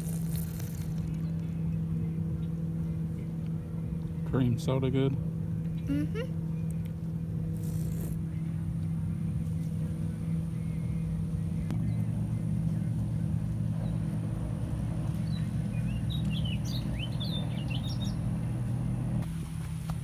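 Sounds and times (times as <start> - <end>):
motor humming: 5.6 - 19.6
bird chirping: 15.0 - 18.9.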